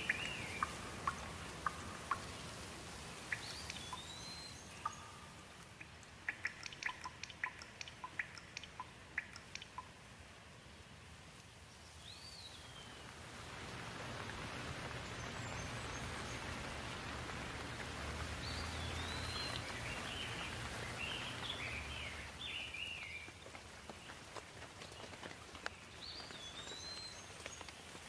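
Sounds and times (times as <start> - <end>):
birds calling and chirping: 0.0 - 2.6, 3.2 - 9.9, 15.0 - 23.4
rain hissing: 0.0 - 28.0.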